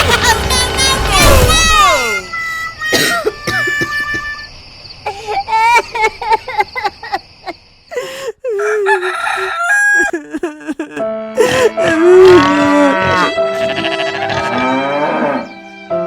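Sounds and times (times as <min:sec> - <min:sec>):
rooster-like crowing: 0:08.5 - 0:10.3
background music: 0:10.9 - 0:16.0
cow mooing: 0:11.9 - 0:15.5.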